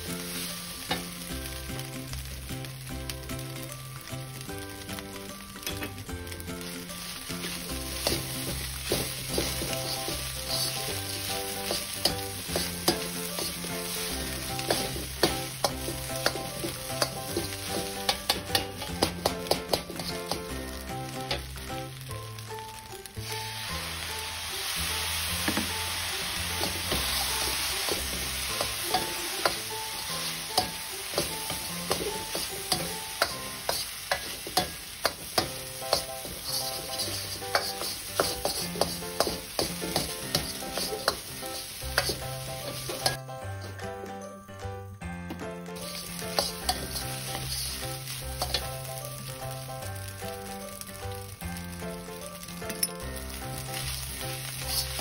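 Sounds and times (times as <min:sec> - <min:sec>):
rice sizzling in a wok: 0:00.0 - 0:43.8, 0:45.7 - 0:55.0
background music: 0:00.0 - 0:55.0
metal ladle scraping a wok: 0:07.4 - 0:20.4, 0:26.6 - 0:43.2, 0:45.9 - 0:48.8, 0:53.8 - 0:55.0.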